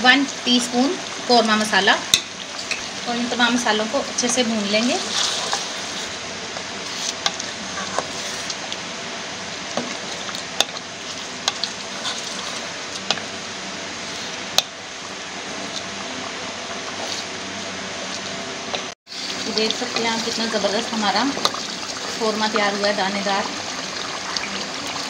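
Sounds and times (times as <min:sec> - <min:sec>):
food sizzling in hot oil: 0:00.0 - 0:25.0
wooden spatula stirring: 0:04.3 - 0:08.7, 0:09.7 - 0:13.3.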